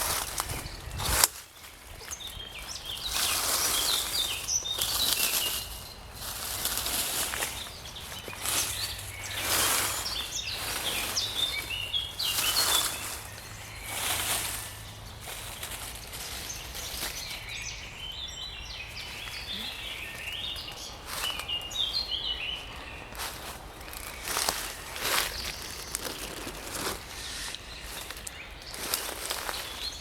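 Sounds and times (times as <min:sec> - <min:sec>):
songbirds chirping: 0:00.0 - 0:30.0
rushing background noise: 0:22.6 - 0:29.7.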